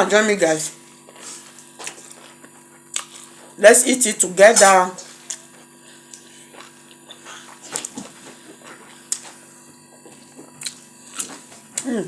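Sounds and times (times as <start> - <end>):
low steady hum: 0.0 - 12.0
soft chewing and mouth noises: 0.8 - 3.6, 5.0 - 11.9.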